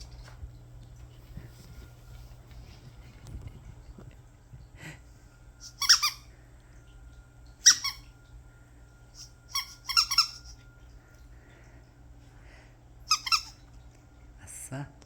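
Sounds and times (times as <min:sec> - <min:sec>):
squeaky dog toy squeaking: 0:05.6 - 0:06.2, 0:07.6 - 0:08.0, 0:09.2 - 0:10.6, 0:13.1 - 0:13.6.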